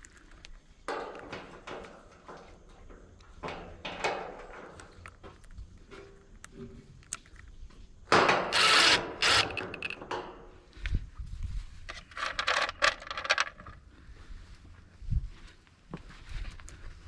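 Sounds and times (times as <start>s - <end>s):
metal parts clicking and scraping: 8.5s - 10.3s, 11.8s - 13.8s.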